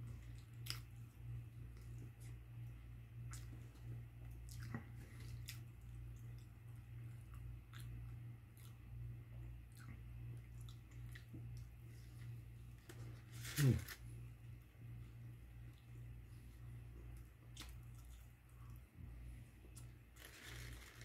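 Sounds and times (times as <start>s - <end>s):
chewing food: 0.0s - 12.4s, 17.0s - 18.9s
steady low hum: 0.0s - 21.0s
mouth clicks and crunches: 17.4s - 18.8s.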